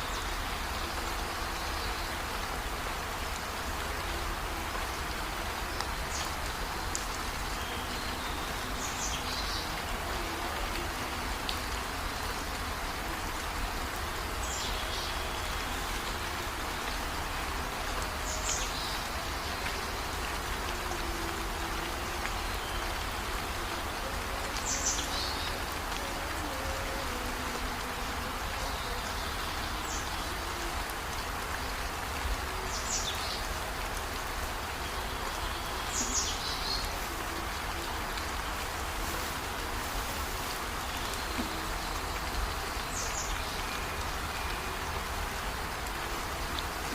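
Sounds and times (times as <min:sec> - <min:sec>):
heavy rain falling: 0:00.0 - 0:46.9.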